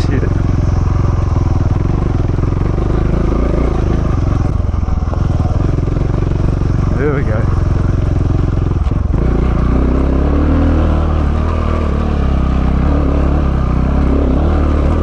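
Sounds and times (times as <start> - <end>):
motorcycle engine lugging: 0.0 - 9.6.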